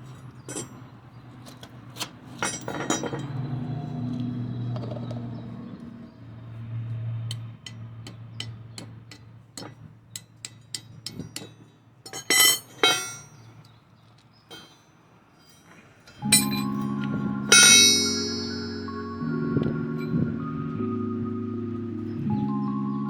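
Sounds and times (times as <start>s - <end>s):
metal tools clinking: 0.0s - 3.7s, 7.3s - 19.0s
metal clattering: 0.1s - 0.9s, 1.6s - 3.4s, 7.3s - 13.7s, 14.5s - 18.9s
low steady hum: 16.2s - 22.6s.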